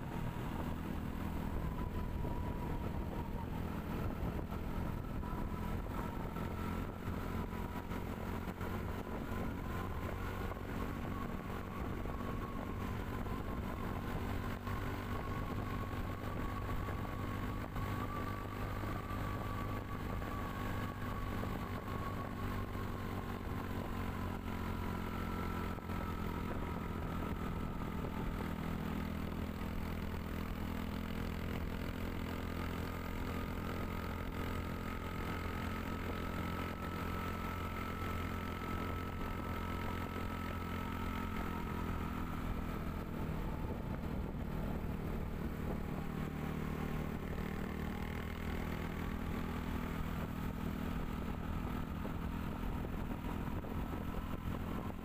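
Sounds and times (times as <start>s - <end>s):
road noise: 0.0s - 55.0s
vehicle engine running: 0.0s - 55.0s.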